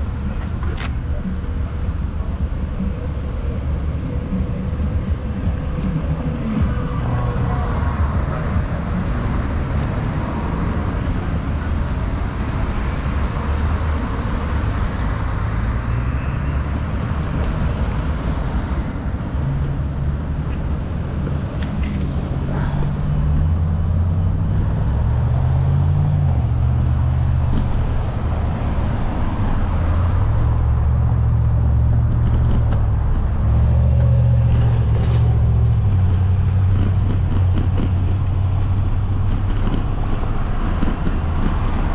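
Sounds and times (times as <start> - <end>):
road noise: 0.0 - 41.9
wind buffeting microphone: 16.8 - 41.9.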